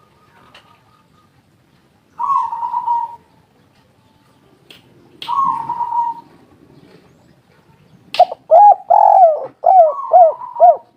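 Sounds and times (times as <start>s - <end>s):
dove cooing: 2.2s - 3.2s, 5.3s - 7.0s, 8.2s - 10.9s.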